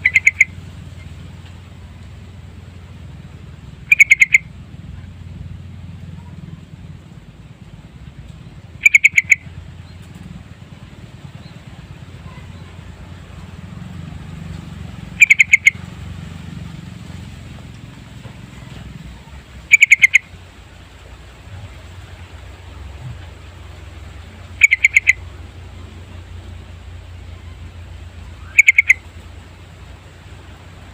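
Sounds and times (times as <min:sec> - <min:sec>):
bird chirping loudly: 0:00.0 - 0:00.6, 0:03.9 - 0:04.5, 0:08.8 - 0:09.5, 0:15.2 - 0:15.8, 0:19.7 - 0:20.2, 0:24.6 - 0:25.2, 0:28.4 - 0:29.0
steady low hum: 0:00.0 - 0:30.9.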